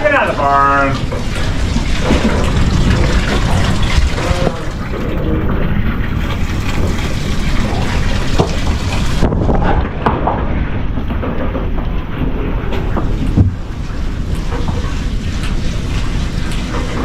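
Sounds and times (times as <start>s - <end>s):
gusty wind buffeting microphone: 1.0s - 14.3s.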